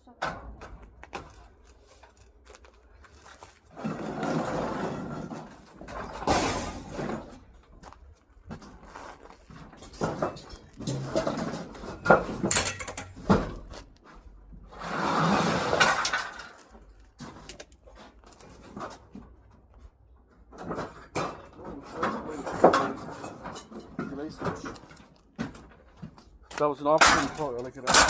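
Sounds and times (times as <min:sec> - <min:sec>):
hard objects knocking and clattering: 0:09.6 - 0:13.8, 0:20.4 - 0:28.0.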